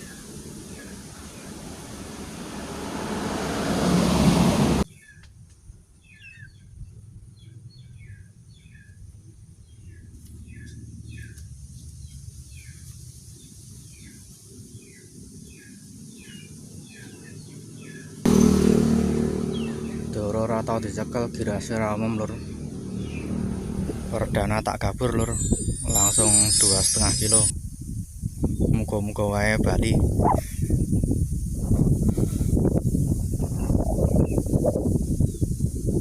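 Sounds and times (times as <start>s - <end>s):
high falling bird chirps: 24.4s - 27.6s
rushing noise: 25.1s - 27.5s.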